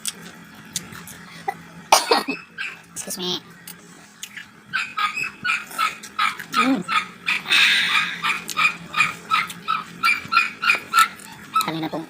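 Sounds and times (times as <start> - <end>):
small dog yapping: 4.7 - 11.8.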